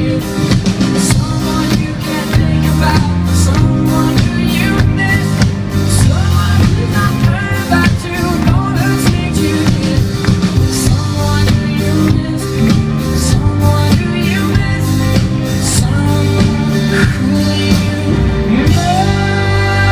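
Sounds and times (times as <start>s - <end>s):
bass guitar: 0.0s - 19.9s
drum kit: 0.0s - 19.9s
guitar: 0.0s - 19.9s
person singing: 0.0s - 19.9s.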